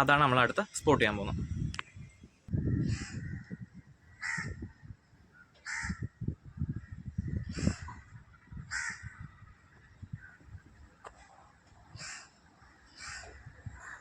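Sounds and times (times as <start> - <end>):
crow cawing: 2.7 - 3.5, 4.1 - 4.6, 5.6 - 6.1, 8.7 - 9.3, 12.0 - 14.0.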